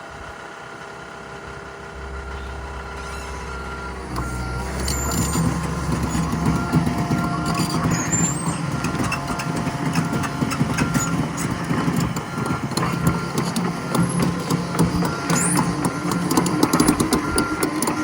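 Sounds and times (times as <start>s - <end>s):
excavator diesel engine running: 0.0s - 18.0s
short high beeps: 1.9s - 9.3s.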